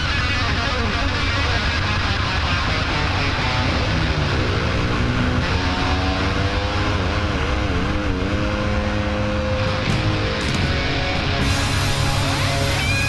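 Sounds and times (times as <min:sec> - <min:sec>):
off-road engine revving: 0:02.8 - 0:13.0.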